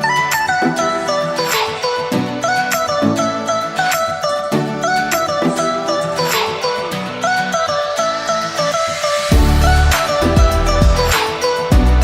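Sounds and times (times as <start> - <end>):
instrumental music with percussive beats: 8.5 - 12.0.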